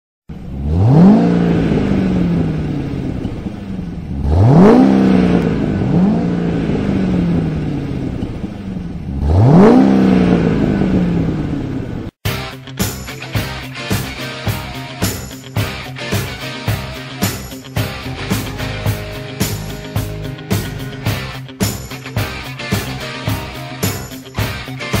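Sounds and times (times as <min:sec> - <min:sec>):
car engine revving: 0:00.3 - 0:12.2
rock music: 0:12.2 - 0:25.0.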